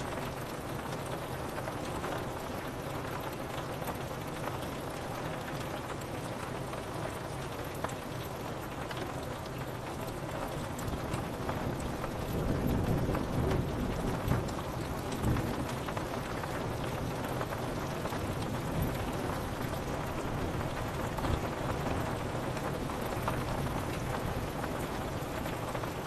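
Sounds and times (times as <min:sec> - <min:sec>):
rain pattering on a window: 0:00.0 - 0:26.0
thunder rumble: 0:11.7 - 0:25.8.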